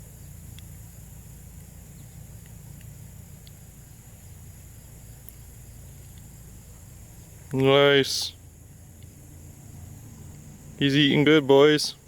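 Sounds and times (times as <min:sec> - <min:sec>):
high-pitched insect chorus: 0:00.0 - 0:12.0
faint ticks: 0:00.4 - 0:00.9, 0:01.5 - 0:03.7, 0:05.1 - 0:06.4, 0:08.9 - 0:09.2.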